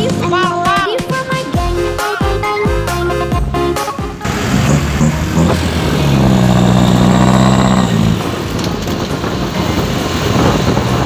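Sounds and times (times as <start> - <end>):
truck engine passing: 4.2 - 11.0.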